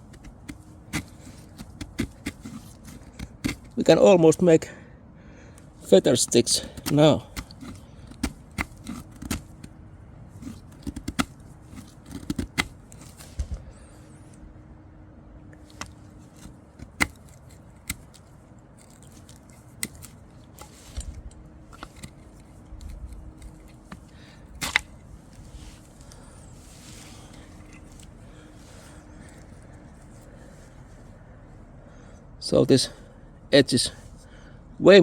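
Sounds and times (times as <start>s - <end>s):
knife shaving wood: 0.0s - 4.4s, 5.8s - 14.0s, 15.6s - 31.0s.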